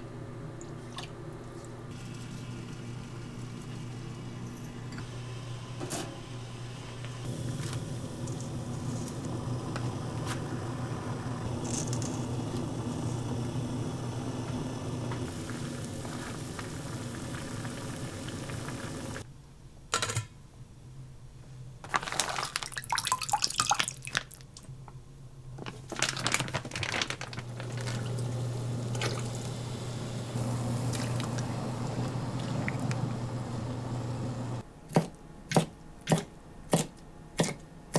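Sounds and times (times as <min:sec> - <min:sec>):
steady low hum: 0:27.7 - 0:34.6
water splashing from tap: 0:27.8 - 0:34.6.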